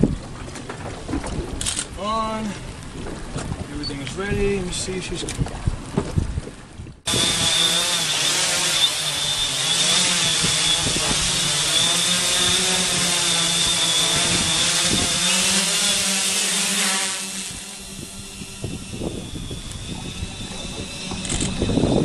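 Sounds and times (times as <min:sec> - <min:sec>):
drone propellers buzzing: 0:07.1 - 0:22.0.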